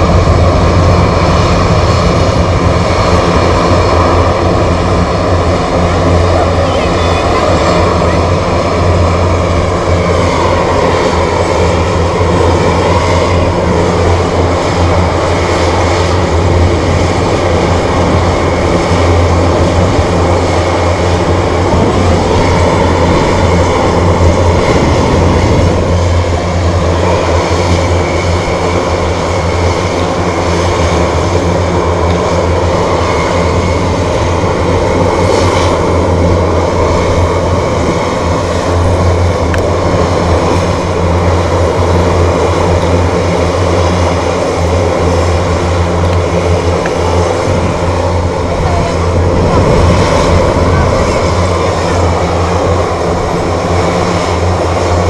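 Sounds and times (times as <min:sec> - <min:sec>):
aircraft engines running: 0:00.0 - 0:55.0.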